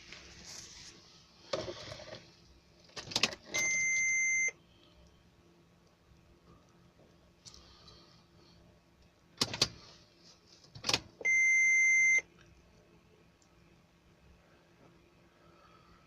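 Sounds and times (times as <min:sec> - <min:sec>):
dashboard electronic beep: 0:03.6 - 0:04.5, 0:11.3 - 0:12.2
ignition key clicks: 0:09.4 - 0:09.8.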